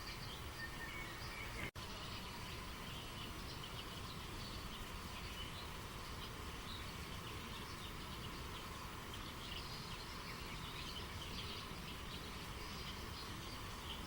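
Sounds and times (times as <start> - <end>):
river water running: 0.0 - 14.0
small birds chirping: 0.0 - 14.0.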